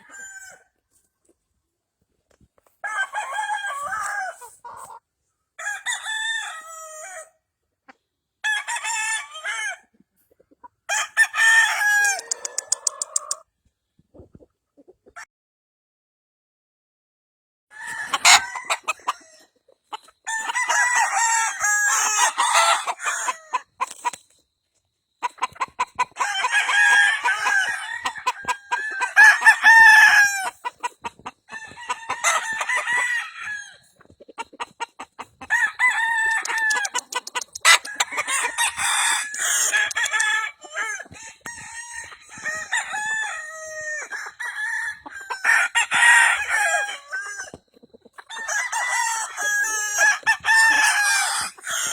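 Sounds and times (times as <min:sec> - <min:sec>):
roosters crowing: 0:00.0 - 0:00.7, 0:02.8 - 0:04.8, 0:05.6 - 0:07.3, 0:10.9 - 0:13.4, 0:17.7 - 0:19.5, 0:20.2 - 0:23.9, 0:25.2 - 0:34.0, 0:34.7 - 0:51.9
chickens clucking: 0:03.7 - 0:05.1, 0:09.9 - 0:10.9, 0:11.8 - 0:15.3, 0:17.8 - 0:21.3, 0:21.9 - 0:51.9.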